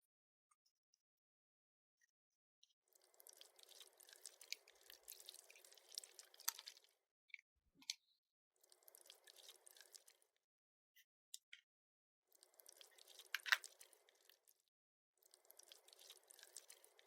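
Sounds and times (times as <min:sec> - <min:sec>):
modelling clay squishing: 0:02.9 - 0:07.0, 0:08.6 - 0:10.3, 0:12.4 - 0:14.6, 0:15.2 - 0:17.0.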